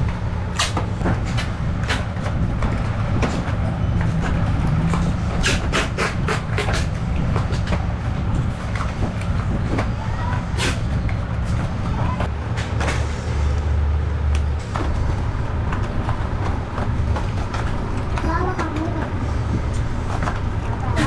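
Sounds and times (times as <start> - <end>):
workshop machinery humming: 0.0 - 21.0.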